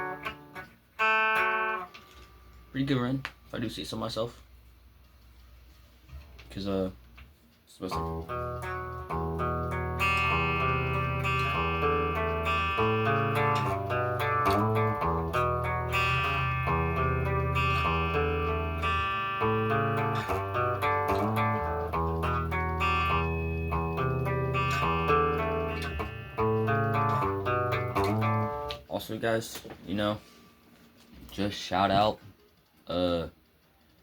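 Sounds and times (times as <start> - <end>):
guitar strumming chords: 0.0 - 2.8, 7.9 - 29.2.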